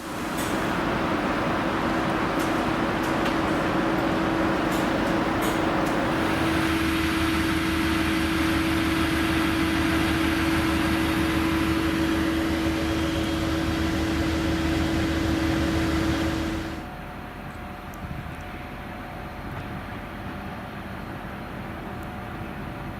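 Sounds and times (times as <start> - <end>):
diesel locomotive engine running: 0.0 - 22.9.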